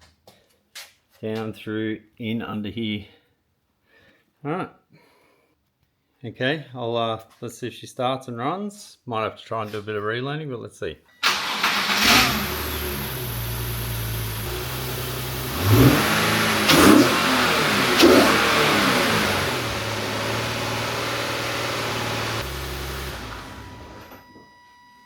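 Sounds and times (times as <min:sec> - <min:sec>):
car engine idling and revving: 0:11.3 - 0:24.2.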